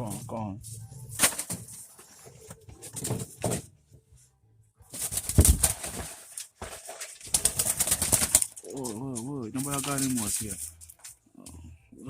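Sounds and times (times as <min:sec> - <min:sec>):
bird wings flapping: 0:04.9 - 0:08.9, 0:09.6 - 0:10.4.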